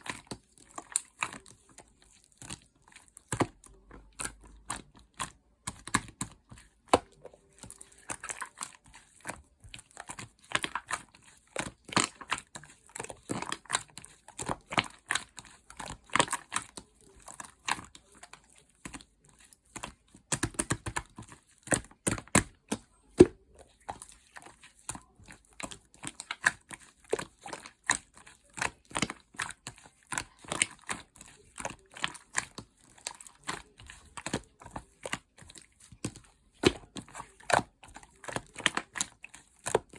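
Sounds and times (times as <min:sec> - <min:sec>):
slime clicking and popping: 0:19.8 - 0:24.0.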